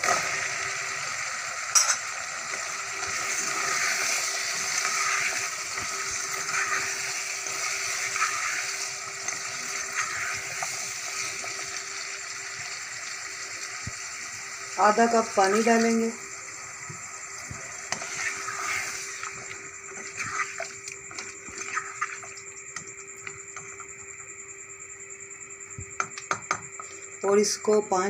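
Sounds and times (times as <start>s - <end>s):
potatoes sizzling in a pot: 0.0s - 28.0s.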